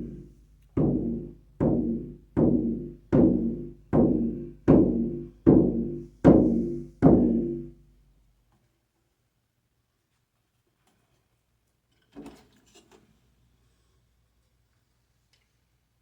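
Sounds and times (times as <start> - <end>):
frame drum strokes ringing: 0.0 - 7.7.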